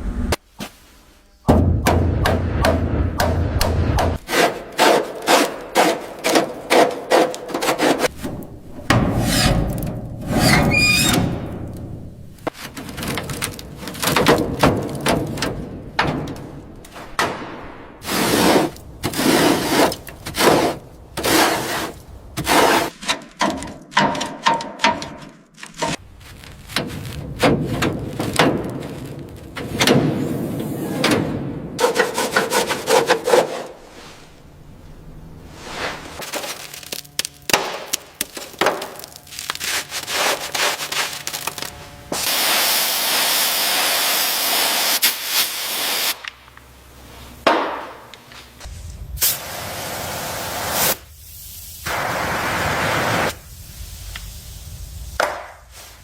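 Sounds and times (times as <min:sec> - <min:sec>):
rubbing and scraping strokes: 0:04.2 - 0:12.8, 0:31.8 - 0:34.5, 0:39.1 - 0:42.3
short high squeak: 0:10.3 - 0:11.4.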